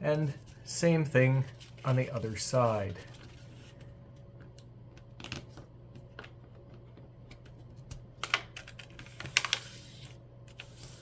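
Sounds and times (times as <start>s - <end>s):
paper folding and crinkling: 1.4s - 4.0s, 8.6s - 11.0s.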